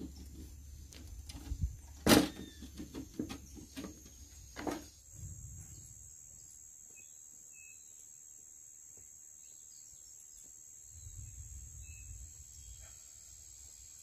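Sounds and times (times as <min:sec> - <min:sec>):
faint small bird chirps: 0:05.7 - 0:08.2.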